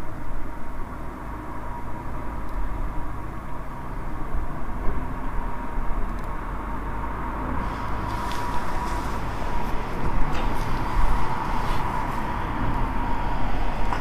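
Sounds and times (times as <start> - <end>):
campfire low rumble: 7.6 - 14.0
faint fire crackles: 7.6 - 14.0.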